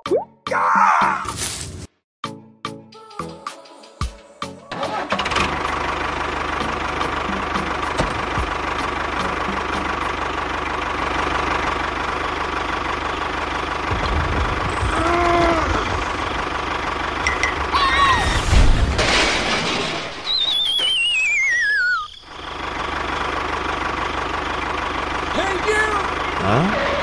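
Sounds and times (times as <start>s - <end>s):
pitched sound rising and falling: 20.5s - 22.3s.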